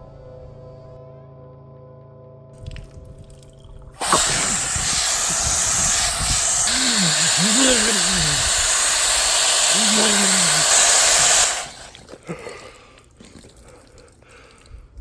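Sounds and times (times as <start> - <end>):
loud rushing hiss: 4.0 - 12.1.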